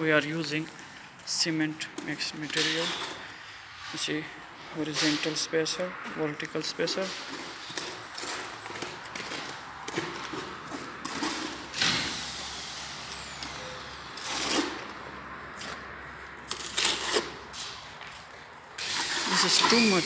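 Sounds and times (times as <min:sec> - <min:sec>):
construction work hiss: 0:11.3 - 0:15.4, 0:18.8 - 0:20.0
loud construction bursts: 0:11.6 - 0:15.2, 0:18.8 - 0:20.0.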